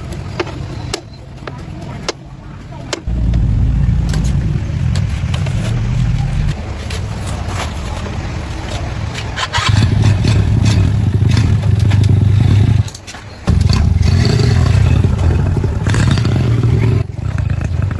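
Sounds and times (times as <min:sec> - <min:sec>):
motorcycle engine running: 0:03.0 - 0:08.0, 0:09.5 - 0:17.9.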